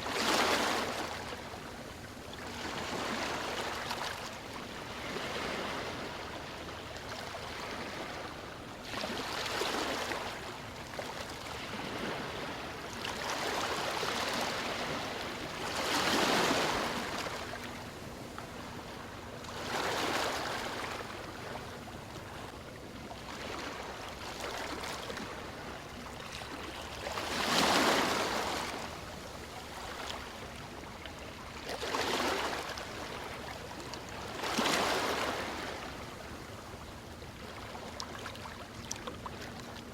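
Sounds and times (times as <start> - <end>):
ocean waves breaking: 7.1 - 22.5, 23.2 - 36.4.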